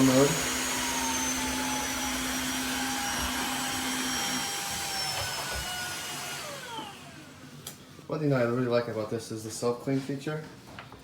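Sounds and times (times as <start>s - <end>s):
floor cleaner motor whine: 0.0s - 8.0s.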